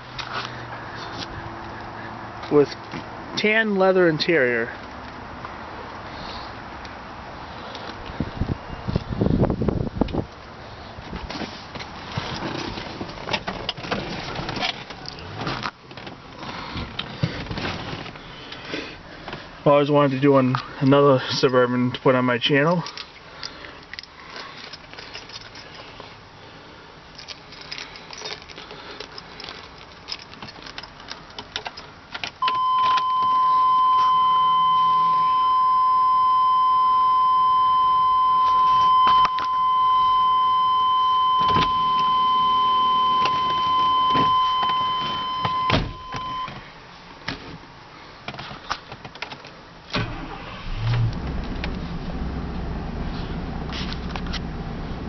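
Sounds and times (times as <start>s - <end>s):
keys jangling: 23.8s - 25.9s, 27.1s - 31.9s
high warning tone: 32.4s - 46.5s
car engine starting and idling: 49.8s - 55.0s.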